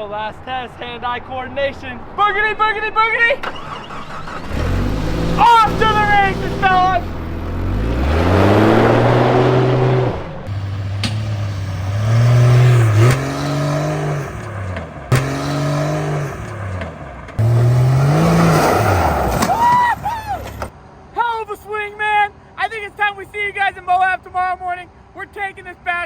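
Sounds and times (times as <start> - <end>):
car engine accelerating hard: 3.4 - 20.7.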